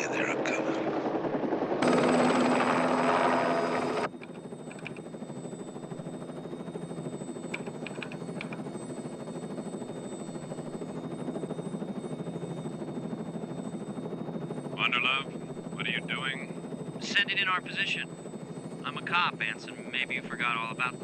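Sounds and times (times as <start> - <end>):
helicopter rotor and turbine: 0.0 - 21.0.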